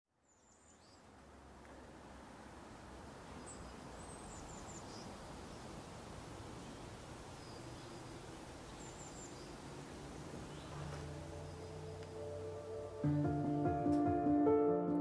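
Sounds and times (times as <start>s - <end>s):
steady outdoor hiss: 0.1s - 15.0s
low music tones: 10.0s - 15.0s.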